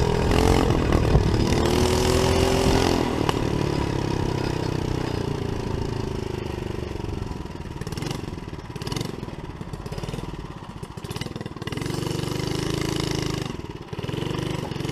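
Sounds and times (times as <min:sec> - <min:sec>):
mini bike engine running: 0:00.0 - 0:14.9.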